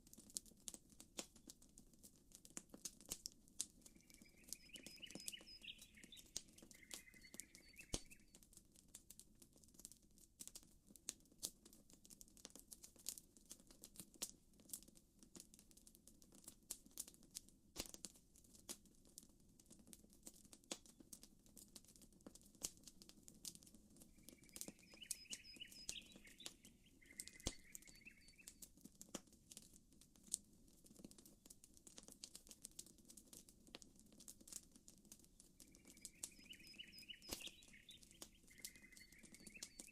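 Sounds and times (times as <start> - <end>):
campfire crackling and popping: 0.0 - 39.9
chirping bird calls: 4.0 - 8.2, 24.2 - 28.5, 35.7 - 39.9.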